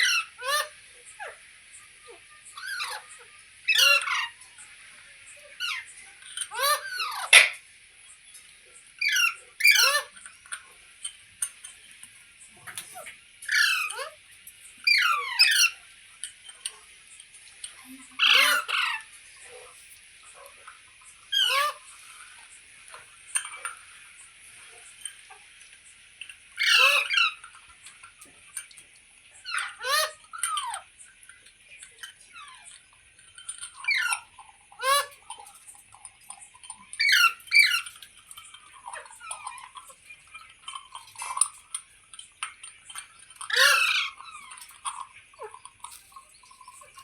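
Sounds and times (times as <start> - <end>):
parrot squawking: 0.0 - 4.5, 5.3 - 7.6, 9.0 - 10.2, 12.7 - 14.2, 14.8 - 15.8, 18.0 - 22.0, 26.6 - 27.6, 29.4 - 31.0, 32.0 - 32.8, 33.4 - 35.7, 36.6 - 47.0.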